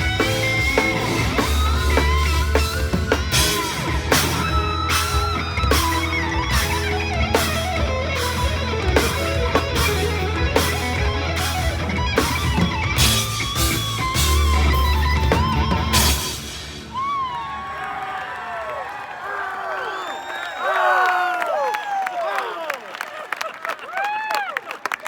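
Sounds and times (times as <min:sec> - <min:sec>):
heavy bass line: 0:00.0 - 0:16.9
electric guitar: 0:00.0 - 0:17.2
drums beating: 0:00.0 - 0:17.3
crowd whistling: 0:00.0 - 0:22.8.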